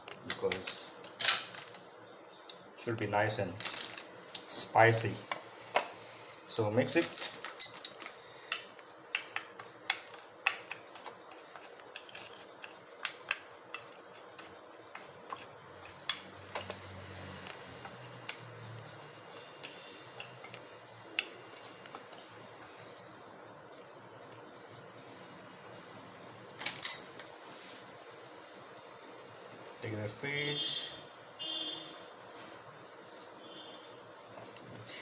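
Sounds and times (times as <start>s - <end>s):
spoon scraping a dish: 8.4s - 23.1s.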